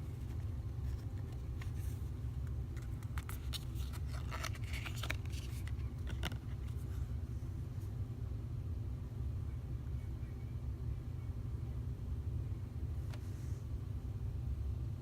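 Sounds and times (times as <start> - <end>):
paper cards rustling and tapping: 0.0 - 7.0
low background hum: 0.0 - 15.0.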